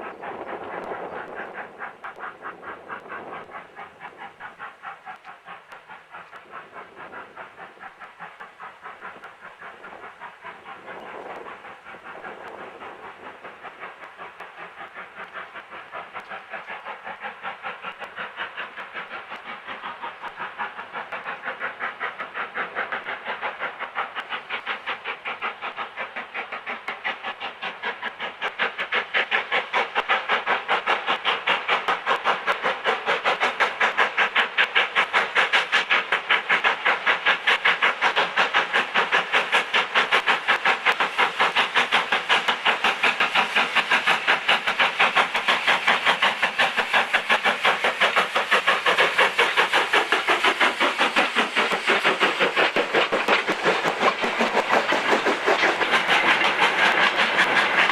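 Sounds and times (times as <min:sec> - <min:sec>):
steam locomotive exhaust chuffs: 0:00.0 - 0:57.9.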